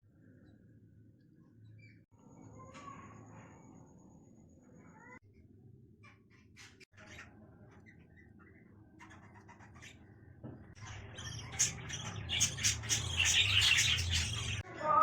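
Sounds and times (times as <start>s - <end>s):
budgerigar chicks calling: 11.0s - 14.6s.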